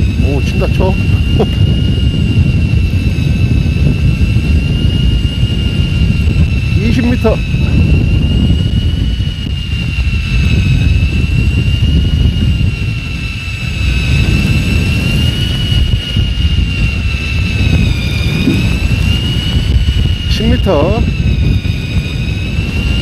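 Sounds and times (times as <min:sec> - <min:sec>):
boat noise: 0:00.0 - 0:03.4, 0:12.4 - 0:23.0
electric fishing reel whine: 0:00.0 - 0:23.0
wind rumble: 0:00.0 - 0:23.0.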